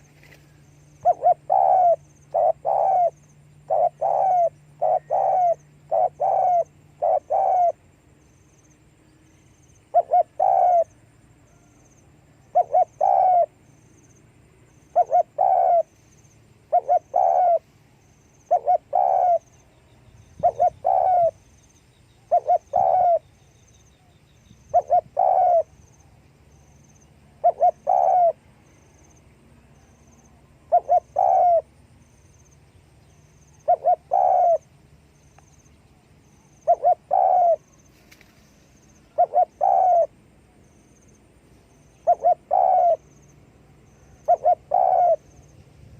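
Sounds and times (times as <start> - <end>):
dove cooing: 0.0 - 7.8, 9.9 - 11.7, 12.4 - 13.6, 14.9 - 15.9, 16.7 - 17.7, 18.4 - 19.6, 20.3 - 21.4, 22.2 - 23.2, 24.7 - 25.8, 27.4 - 28.4, 30.7 - 31.7, 33.6 - 34.7, 36.6 - 37.7, 39.1 - 40.2, 42.0 - 45.5.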